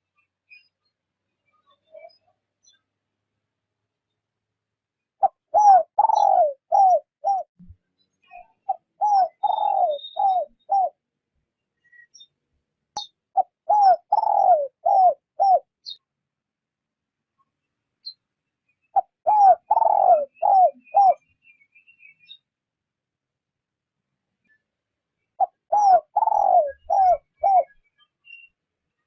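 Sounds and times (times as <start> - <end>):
dove cooing: 5.2 - 7.5, 8.7 - 11.0, 13.4 - 15.7, 19.0 - 21.2, 25.4 - 27.8.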